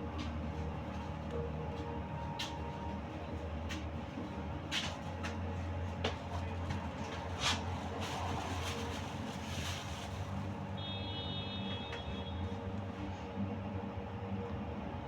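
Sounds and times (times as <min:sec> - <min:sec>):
trolleybus running hum: 0:00.0 - 0:15.0.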